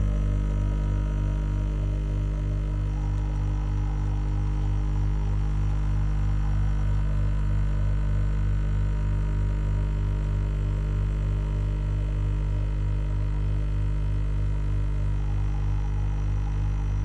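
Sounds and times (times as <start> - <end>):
faint regular pulsing: 0.0 - 8.6
coffee machine humming: 0.0 - 13.4, 14.9 - 17.0.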